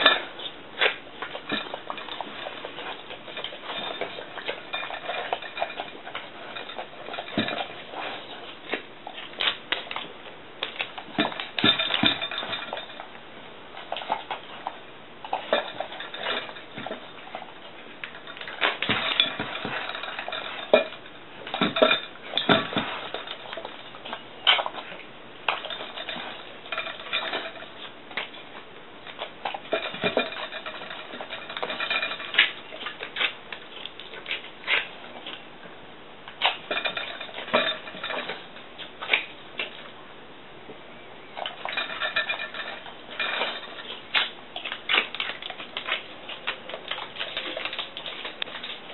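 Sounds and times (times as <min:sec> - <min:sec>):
dog eating: 0:00.0 - 0:40.0, 0:41.2 - 0:48.9
dish clinking and knocking: 0:03.3 - 0:08.1, 0:11.2 - 0:13.1, 0:15.3 - 0:17.2, 0:18.0 - 0:23.8, 0:29.7 - 0:32.6, 0:36.6 - 0:38.4.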